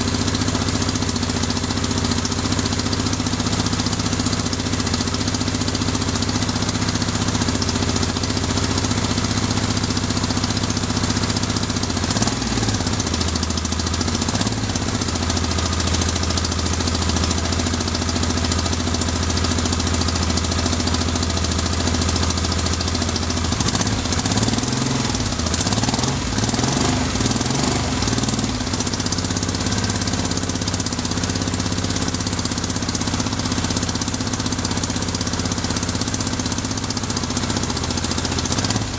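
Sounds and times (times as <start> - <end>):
motorcycle engine misfiring at idle: 0.0 - 38.9.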